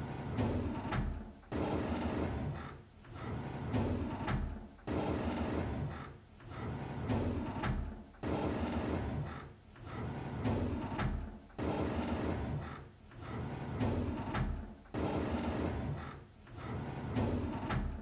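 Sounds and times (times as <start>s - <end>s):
drawer sliding open: 9.9s - 18.0s.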